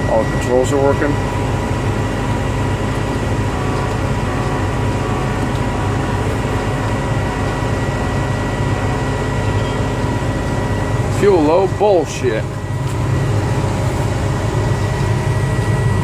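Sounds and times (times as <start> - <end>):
diesel engine droning: 0.0 - 16.0
thin high whine: 0.0 - 16.0.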